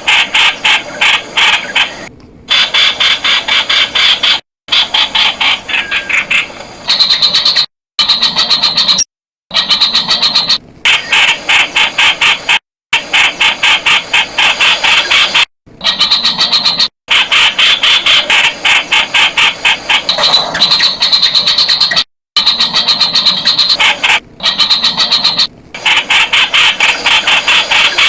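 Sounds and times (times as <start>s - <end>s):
bulbul chirping: 6.9s - 10.6s.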